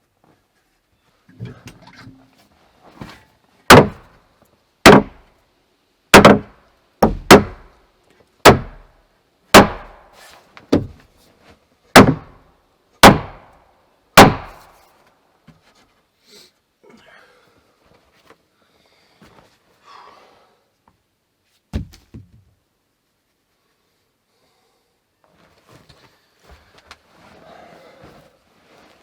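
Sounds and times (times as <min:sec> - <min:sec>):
hammer striking wood: 0:03.7 - 0:04.0, 0:04.8 - 0:05.2, 0:06.1 - 0:07.7, 0:08.4 - 0:08.9, 0:09.5 - 0:10.0, 0:12.0 - 0:12.4, 0:13.0 - 0:13.5, 0:14.2 - 0:14.6.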